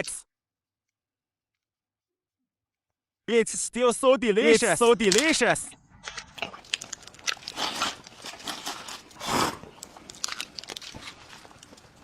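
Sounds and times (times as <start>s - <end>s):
chewing and crunching: 5.9s - 12.0s
noisy bites or slurps: 6.1s - 12.0s
mouth clicks: 9.0s - 11.8s.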